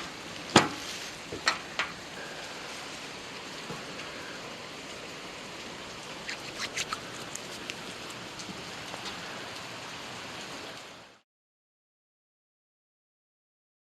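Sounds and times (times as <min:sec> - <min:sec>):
steady rain hissing: 0:00.0 - 0:11.2
sharp drip ticks: 0:03.6 - 0:10.4.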